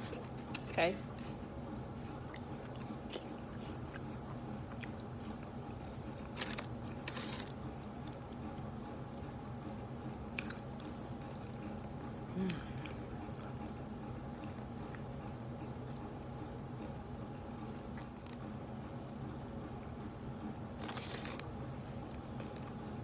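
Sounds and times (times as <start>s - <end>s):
steady low hum: 0.0s - 23.0s
biting and chewing crispy food: 2.1s - 17.0s, 20.7s - 23.0s.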